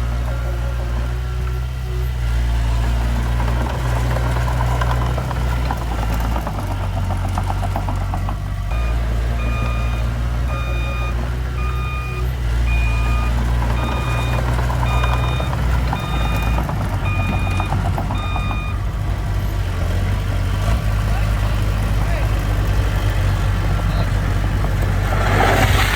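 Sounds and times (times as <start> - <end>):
heavy engine rumble: 0.0 - 25.9
reversing alarm beeping: 8.7 - 18.9.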